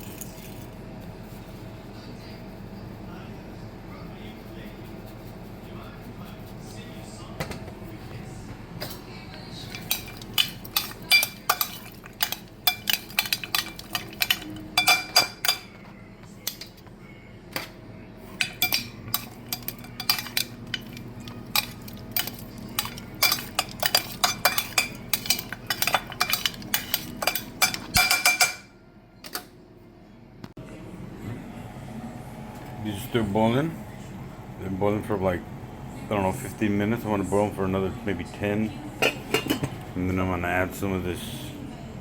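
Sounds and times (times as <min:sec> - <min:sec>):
metal utensil clinking on pot: 0:08.8 - 0:15.8, 0:18.4 - 0:28.7, 0:39.0 - 0:39.8.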